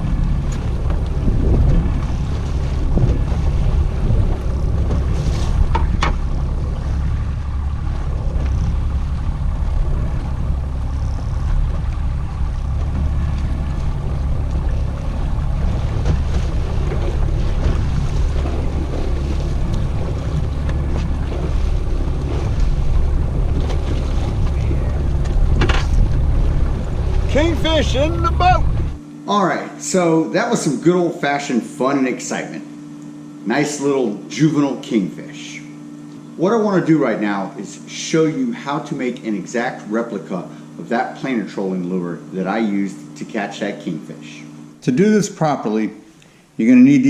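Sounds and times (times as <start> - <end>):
wind on microphone: 0.0 - 29.0
boat engine low rumble: 0.0 - 47.0
water noise: 0.0 - 47.0.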